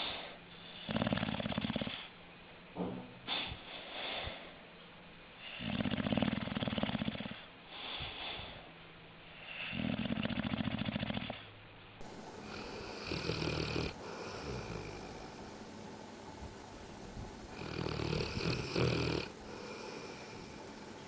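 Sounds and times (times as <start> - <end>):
dog snoring: 0.0 - 2.1, 5.4 - 8.6, 9.3 - 11.5, 12.4 - 15.4, 17.5 - 20.6.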